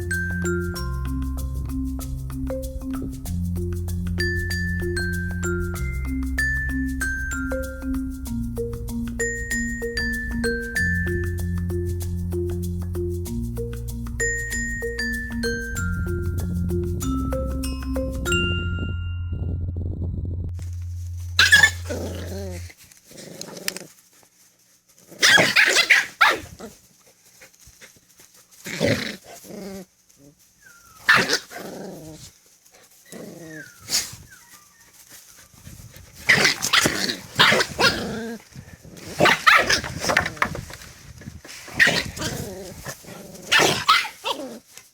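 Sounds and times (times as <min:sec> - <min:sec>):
dog barking and growling: 0:21.2 - 0:23.9, 0:25.1 - 0:26.8, 0:31.0 - 0:32.3, 0:36.2 - 0:40.6, 0:41.7 - 0:44.7.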